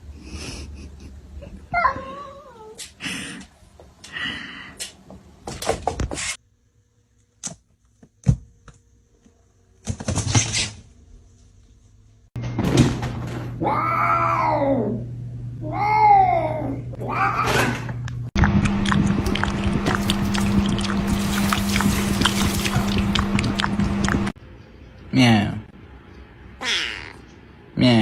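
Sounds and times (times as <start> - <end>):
cat meowing: 26.6 - 27.2.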